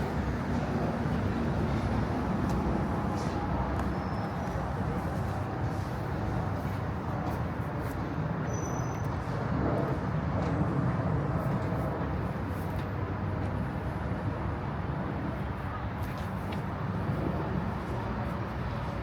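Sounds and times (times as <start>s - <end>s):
city road traffic rumble: 0.0s - 19.0s.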